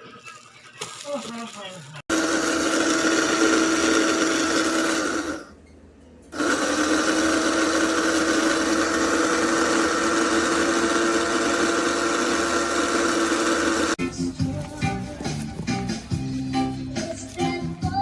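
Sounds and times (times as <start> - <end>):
electric grinder whirring: 2.1 - 5.5, 6.4 - 14.0.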